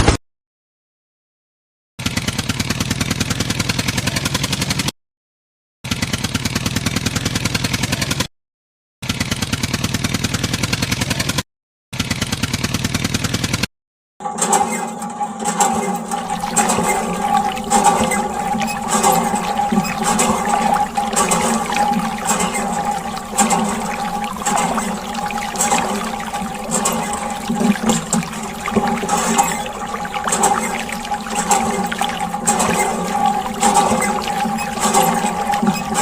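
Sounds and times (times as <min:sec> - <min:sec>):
noisy sound with steady tones: 0:15.0 - 0:36.0.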